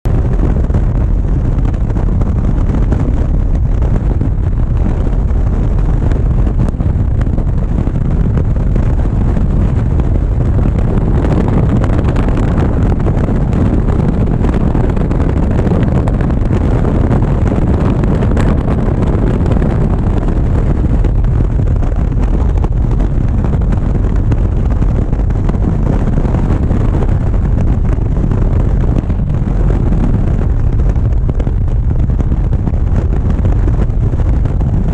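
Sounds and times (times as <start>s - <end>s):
motorcycle engine running: 0.0s - 34.9s
wind rushing over microphone: 0.0s - 34.9s.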